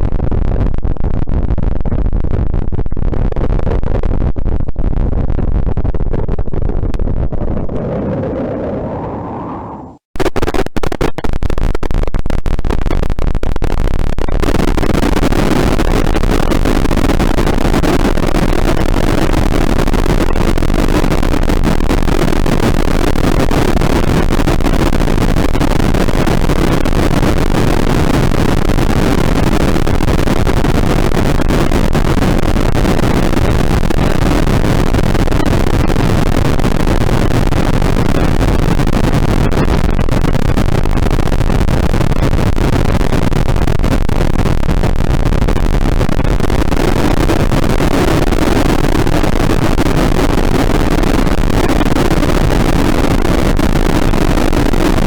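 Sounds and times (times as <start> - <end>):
distorted noise blast: 7.0 - 55.0.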